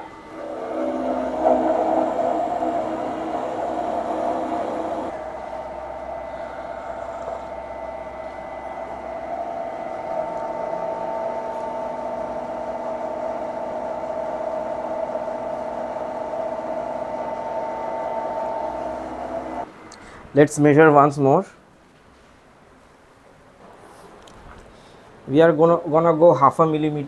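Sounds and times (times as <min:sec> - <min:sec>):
milling machine cutting metal: 0:00.0 - 0:19.7.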